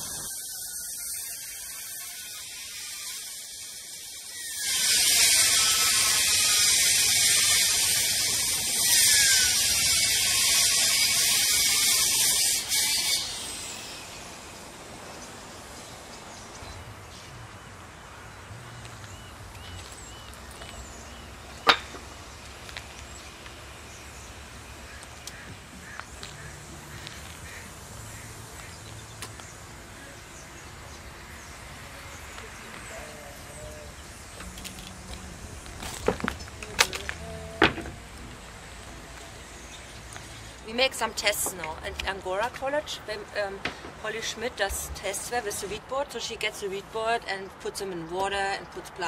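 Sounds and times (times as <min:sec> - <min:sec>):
power tool hiss: 0:00.0 - 0:15.0
outdoor background: 0:00.0 - 0:49.0.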